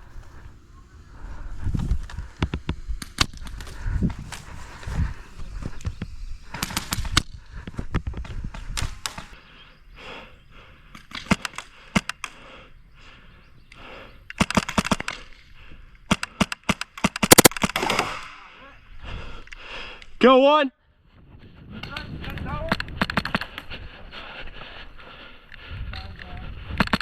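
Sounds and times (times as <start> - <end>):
airsoft guns firing: 6.5 - 7.3, 14.4 - 15.4, 16.1 - 18.6.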